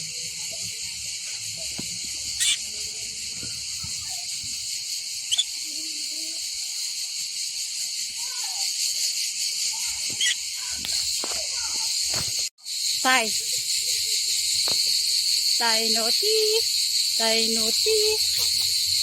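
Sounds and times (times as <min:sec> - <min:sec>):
insects buzzing: 0:00.0 - 0:19.0
short bird chirps: 0:05.2 - 0:05.7.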